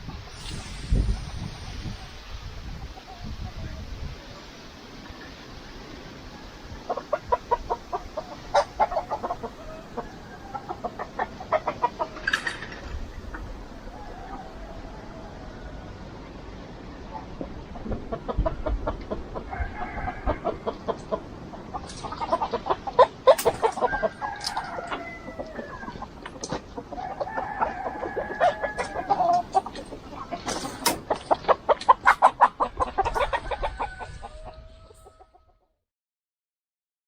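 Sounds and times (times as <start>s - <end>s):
chickens clucking: 0.0s - 35.6s
rooster-like drawn-out calls: 0.3s - 35.8s.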